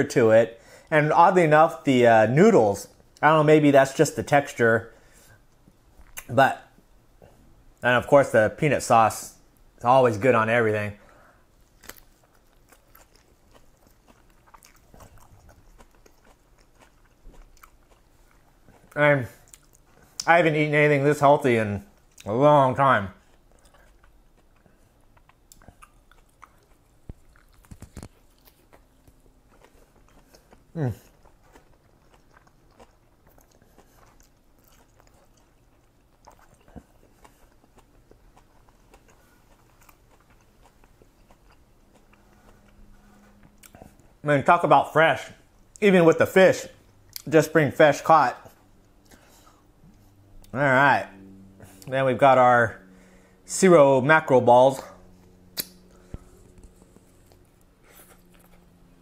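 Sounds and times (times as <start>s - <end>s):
wet crunching chewing: 11.6s - 20.3s, 23.2s - 44.2s, 54.7s - 59.0s
small mouth clicks: 55.5s - 56.8s.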